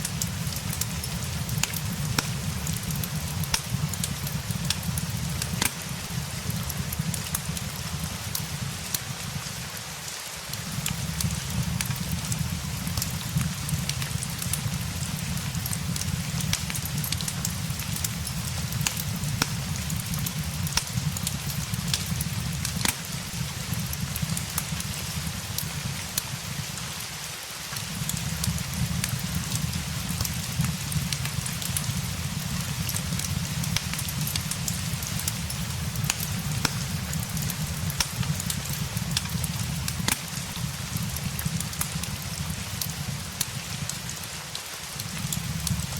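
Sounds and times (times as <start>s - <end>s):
fireplace crackling: 0.0s - 45.9s
rain patter: 0.0s - 45.9s.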